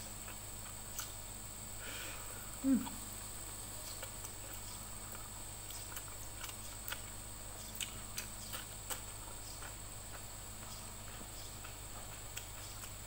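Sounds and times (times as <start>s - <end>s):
chewing and lip smacks: 0.1s - 1.2s, 3.8s - 13.0s.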